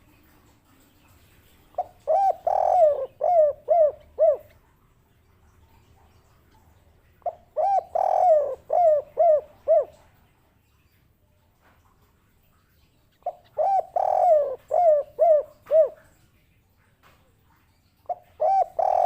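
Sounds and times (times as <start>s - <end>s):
dove cooing: 1.7s - 4.8s, 7.1s - 10.1s, 13.2s - 16.2s, 18.1s - 19.0s.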